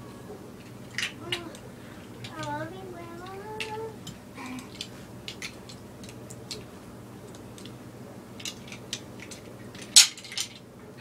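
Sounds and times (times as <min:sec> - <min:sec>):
plastic toy pieces clicking: 0:03.2 - 0:03.8, 0:04.6 - 0:06.7, 0:08.4 - 0:10.6.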